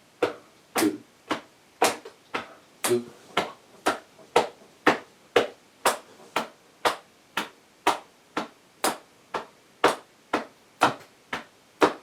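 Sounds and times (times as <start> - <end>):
hand slaps on chest: 0.2 - 12.0.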